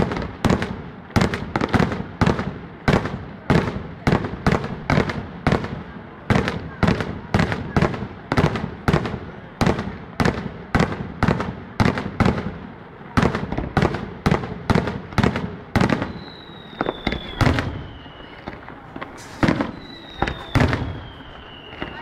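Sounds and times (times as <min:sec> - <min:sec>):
fireworks banging: 0:00.0 - 0:22.0
falling whistle: 0:16.0 - 0:18.6, 0:19.3 - 0:22.0.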